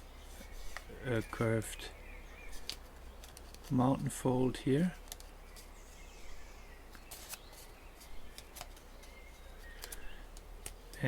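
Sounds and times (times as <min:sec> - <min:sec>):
paper crinkling: 0:02.5 - 0:04.2, 0:06.9 - 0:10.8.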